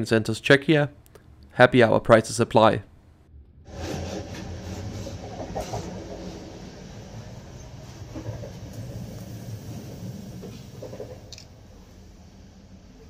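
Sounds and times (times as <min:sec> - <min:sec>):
passenger train rumbling: 0:03.7 - 0:13.0.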